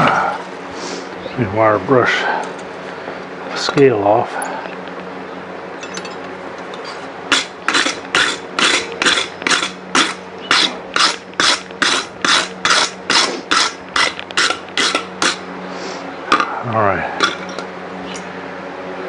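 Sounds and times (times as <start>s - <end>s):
low hum: 0.0s - 19.0s
wire brush scrubbing steel: 6.7s - 16.5s.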